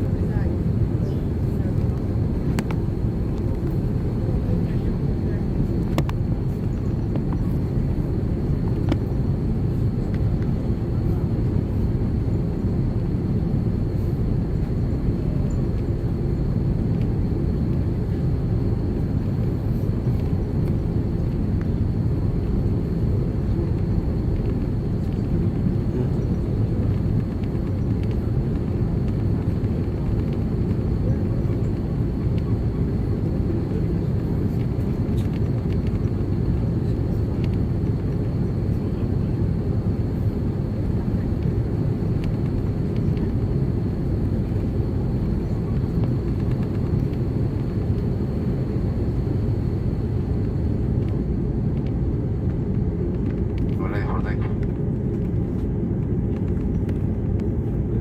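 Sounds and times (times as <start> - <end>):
aircraft engines idling rumble: 0.0 - 58.0.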